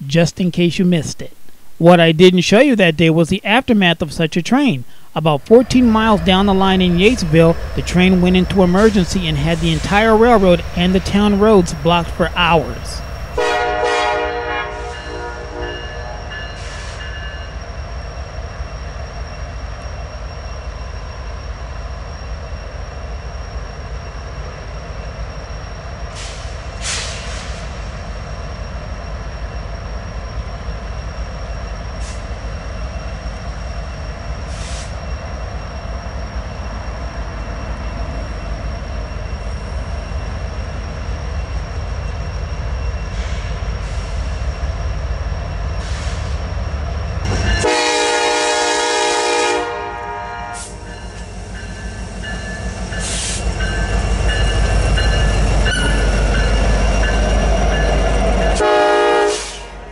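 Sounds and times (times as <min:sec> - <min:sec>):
diesel locomotive rumble: 0:00.0 - 0:59.9
high wheel squeal: 0:50.6 - 0:58.7.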